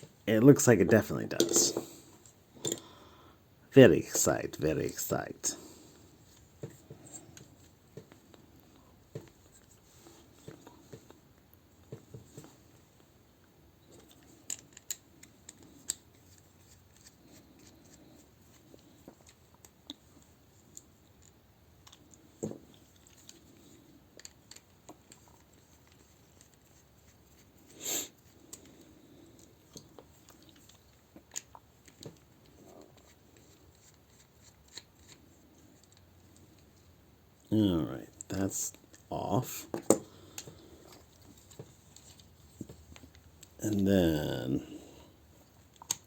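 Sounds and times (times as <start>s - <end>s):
plastic toy parts clicking: 14.0s - 17.1s.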